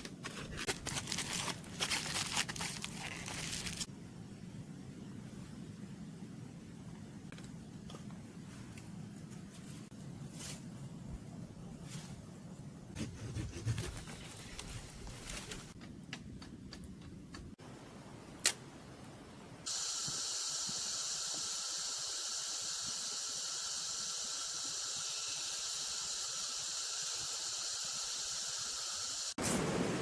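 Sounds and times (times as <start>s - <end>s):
insect chorus drone: 19.7s - 29.4s.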